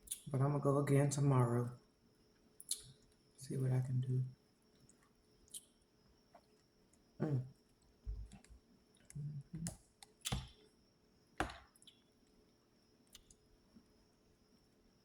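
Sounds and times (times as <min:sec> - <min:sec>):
chewing mouth clicks and smacks: 0:00.1 - 0:00.3, 0:02.6 - 0:03.0.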